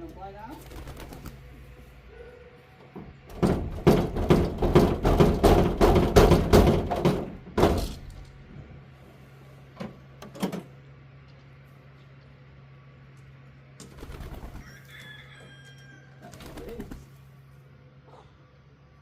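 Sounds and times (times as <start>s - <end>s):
chickens flapping wings: 0.5s - 1.7s, 13.8s - 15.2s, 16.2s - 17.3s
chickens landing thuds: 3.0s - 8.2s.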